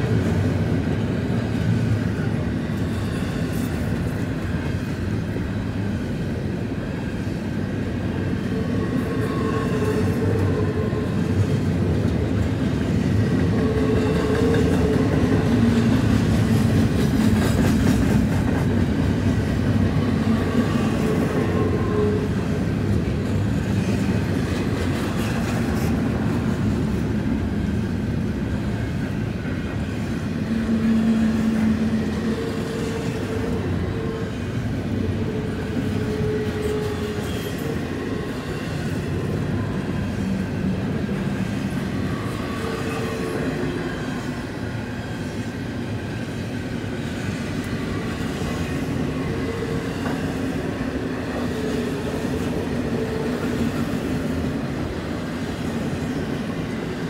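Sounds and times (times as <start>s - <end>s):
freight cars rumbling on rails: 0.0s - 57.0s.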